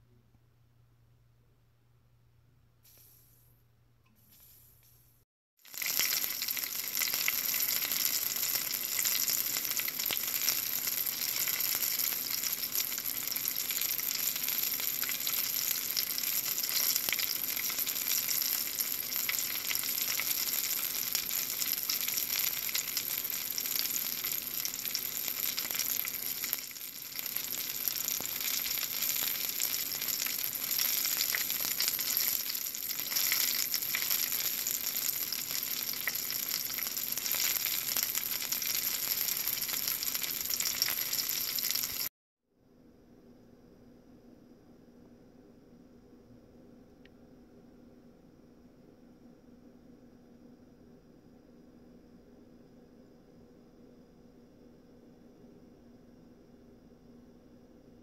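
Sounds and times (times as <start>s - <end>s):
food sizzling in oil: 5.6s - 42.1s.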